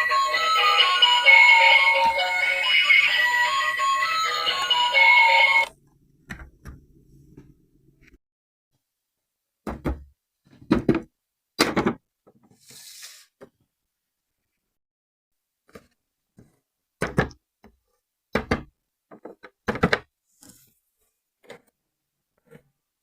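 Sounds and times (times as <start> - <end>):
background music: 0.0 - 5.7.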